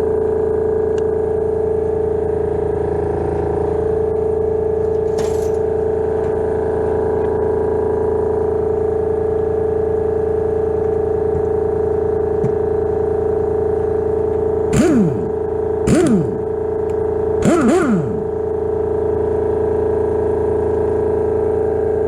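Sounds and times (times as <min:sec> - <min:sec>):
scooter engine running: 0:14.7 - 0:20.0.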